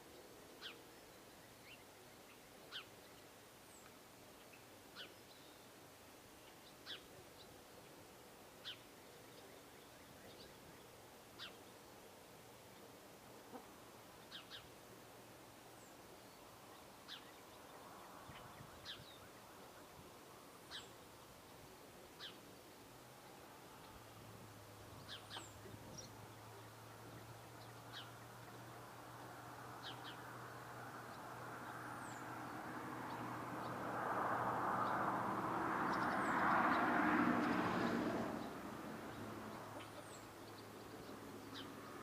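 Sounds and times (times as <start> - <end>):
steady background hiss: 0.0 - 33.9
birds chirping: 24.9 - 33.9, 34.7 - 42.0.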